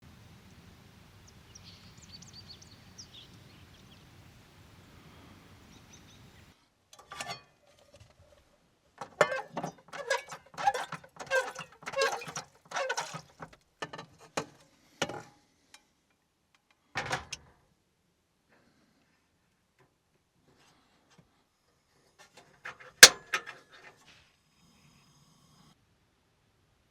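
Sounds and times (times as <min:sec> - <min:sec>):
faint hiss: 0:00.0 - 0:06.8
objects knocked and moved about: 0:07.0 - 0:08.4, 0:09.0 - 0:15.3, 0:17.0 - 0:17.5, 0:22.2 - 0:24.2.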